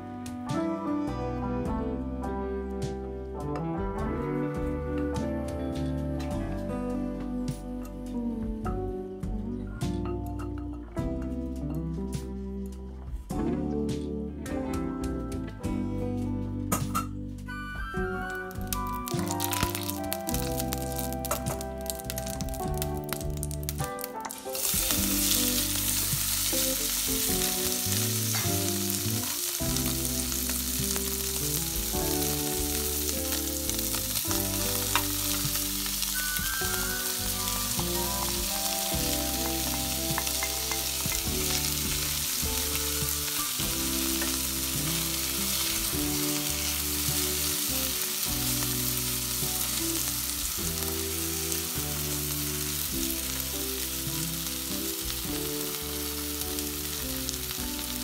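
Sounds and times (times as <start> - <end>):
food sizzling in oil: 18.3 - 58.0.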